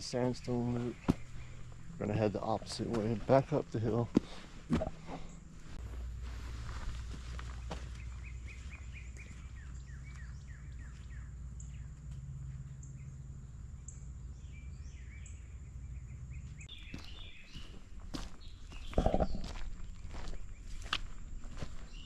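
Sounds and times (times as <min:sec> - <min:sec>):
low steady rumble: 0:00.0 - 0:16.6
birds chirping: 0:00.0 - 0:22.0.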